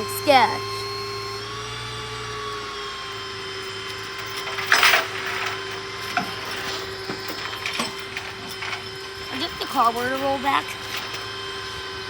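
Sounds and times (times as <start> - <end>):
tow truck winch whining: 0.0 - 12.0
loud rough scraping: 2.9 - 12.0
small knocks: 3.8 - 11.8.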